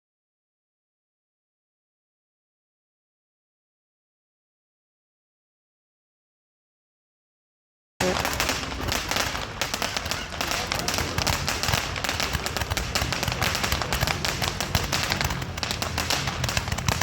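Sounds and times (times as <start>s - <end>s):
fireworks crackling: 8.0s - 17.0s.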